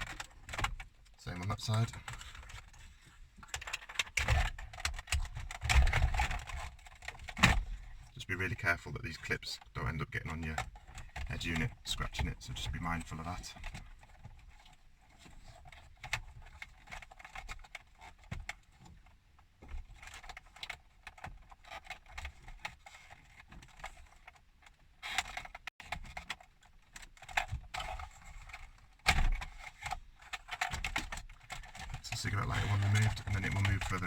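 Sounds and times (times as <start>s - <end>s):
plastic trim clicks and rattles: 19.6s - 34.0s.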